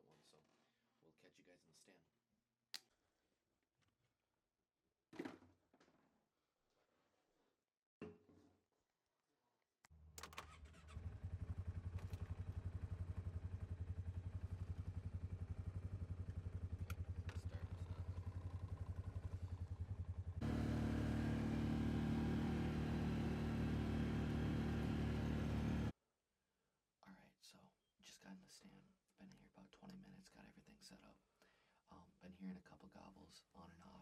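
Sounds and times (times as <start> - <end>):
utility vehicle engine running: 10.2 - 25.9.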